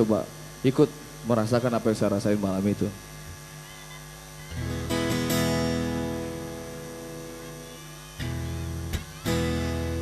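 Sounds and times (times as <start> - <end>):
acoustic guitar chord strummed: 4.4 - 10.0.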